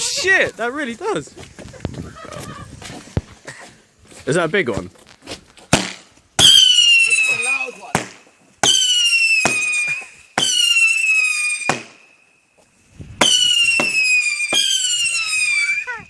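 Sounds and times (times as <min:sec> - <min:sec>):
firework cracks: 0:05.7 - 0:12.1, 0:13.1 - 0:16.0
whistling fireworks: 0:06.4 - 0:08.0, 0:08.6 - 0:16.0.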